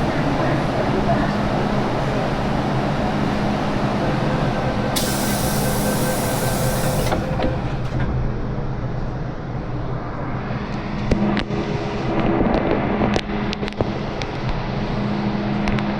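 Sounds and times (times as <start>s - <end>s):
train rumbling with motor hum: 0.0s - 15.9s
loud hiss: 5.0s - 7.4s.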